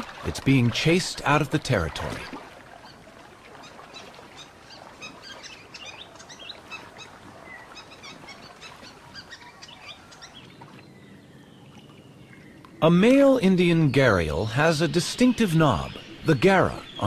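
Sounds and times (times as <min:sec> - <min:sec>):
small birds chirping: 0:03.6 - 0:17.0.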